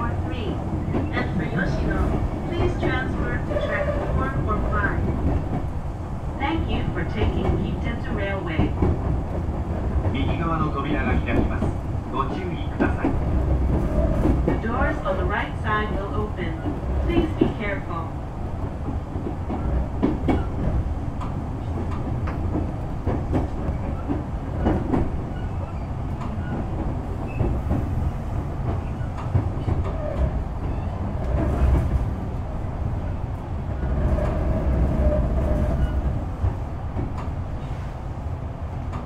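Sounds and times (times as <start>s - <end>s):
train wheels rumbling on rails: 0.0s - 39.0s
wheels clicking over rail joints: 28.6s - 32.1s.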